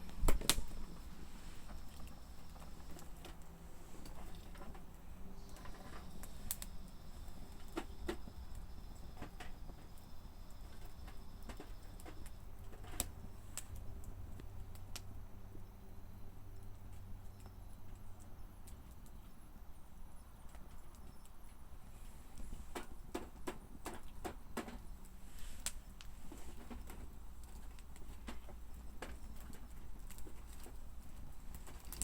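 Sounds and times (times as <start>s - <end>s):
campfire crackling and popping: 0.0s - 15.2s, 16.4s - 32.0s
low steady rumble: 0.0s - 20.5s.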